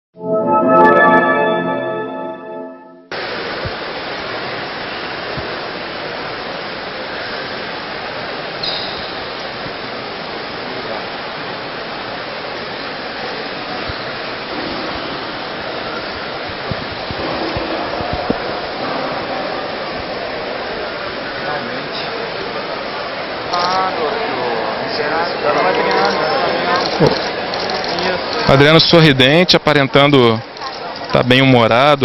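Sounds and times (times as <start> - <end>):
brief high tone: 0.2 - 3.1
crowd din: 14.0 - 31.2.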